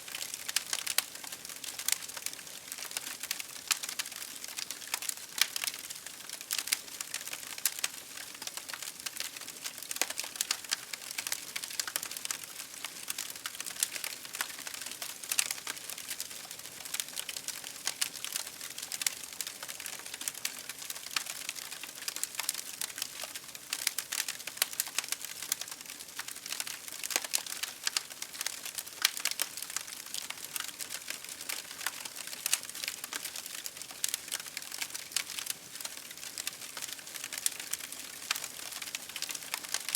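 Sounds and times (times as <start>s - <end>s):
campfire crackling: 0.1s - 39.9s.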